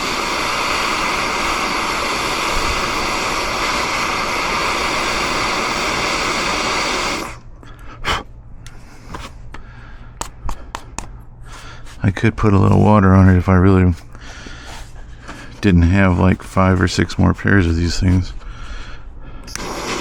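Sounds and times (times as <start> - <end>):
gas torch flame hissing: 0.0 - 7.4, 19.4 - 20.0.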